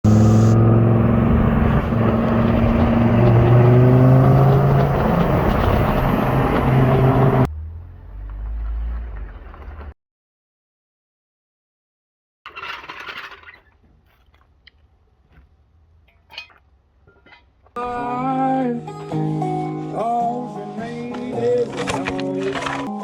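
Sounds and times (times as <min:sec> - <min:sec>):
car engine revving: 0:00.0 - 0:09.0
low engine rumble: 0:00.0 - 0:09.9.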